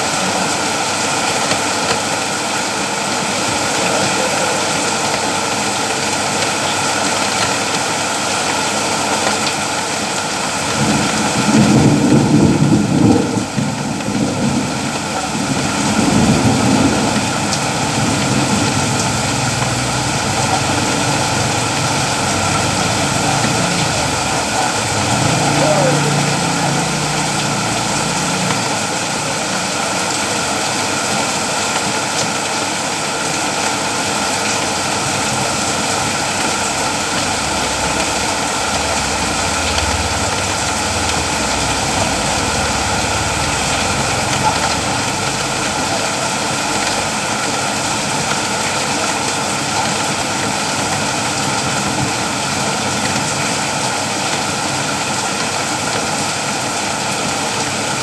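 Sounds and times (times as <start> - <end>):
heavy rain falling: 0.0 - 58.0
low rumble: 35.7 - 46.2.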